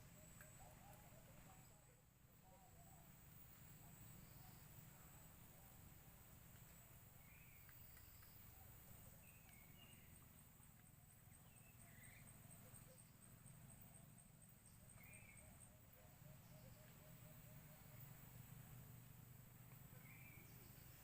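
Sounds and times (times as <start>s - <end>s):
soft bird chirps: 6.6s - 21.0s.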